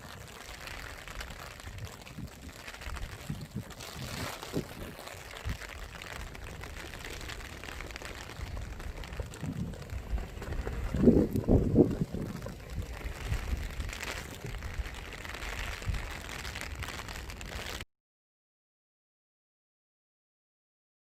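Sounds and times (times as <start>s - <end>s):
rain falling: 0.0s - 17.8s
water splashing and trickling: 0.0s - 17.8s.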